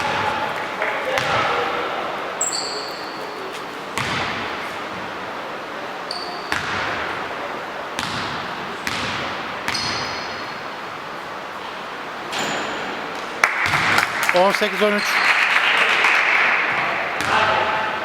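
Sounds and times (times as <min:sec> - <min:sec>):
basketball bouncing on hardwood: 0:00.0 - 0:01.6, 0:04.0 - 0:04.4
sneaker squeaks: 0:00.0 - 0:04.6, 0:06.0 - 0:06.9, 0:08.9 - 0:10.7, 0:12.3 - 0:13.0.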